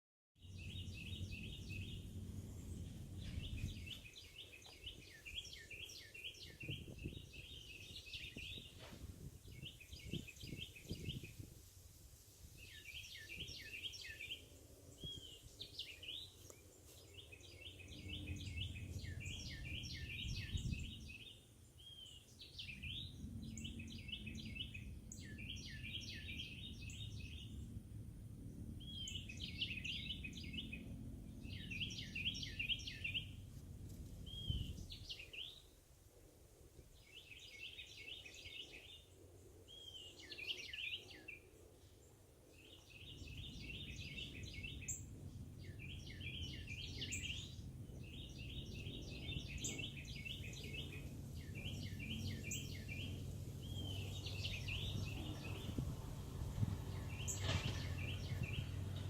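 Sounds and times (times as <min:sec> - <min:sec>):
songbirds chirping: 0:00.4 - 0:59.0
low rumble: 0:00.5 - 0:05.0, 0:43.3 - 0:59.0.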